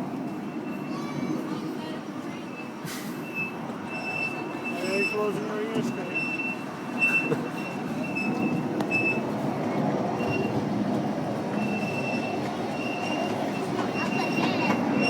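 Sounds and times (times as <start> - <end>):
miniature train rumbling on track: 0.0 - 15.0
high wheel squeal: 2.4 - 9.3, 11.6 - 15.0.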